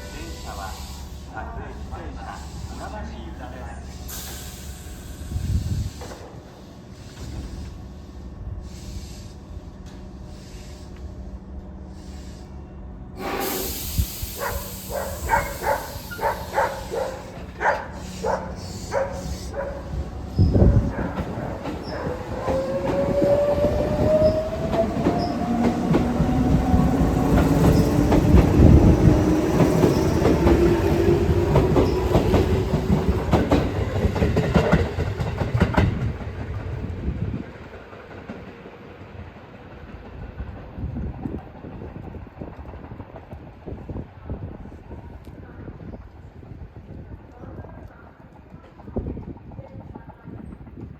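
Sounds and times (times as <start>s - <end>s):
air brake hiss: 3.9s - 9.5s, 10.2s - 11.1s, 11.9s - 12.6s, 13.2s - 19.6s.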